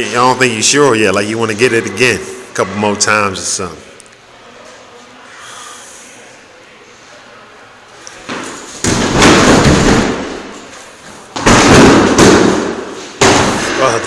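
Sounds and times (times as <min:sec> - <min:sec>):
heavy slamming thuds: 0:08.2 - 0:10.6, 0:11.3 - 0:13.9.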